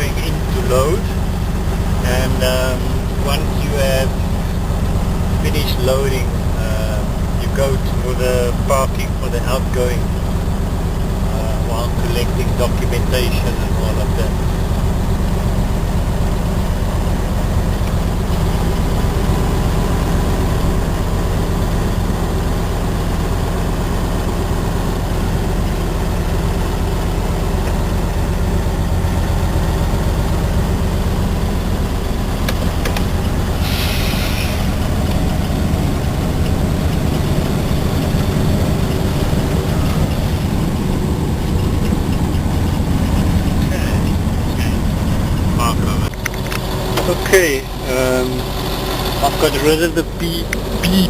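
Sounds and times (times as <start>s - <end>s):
truck diesel engine running: 0.0s - 51.0s
short burst of hiss: 33.6s - 34.7s.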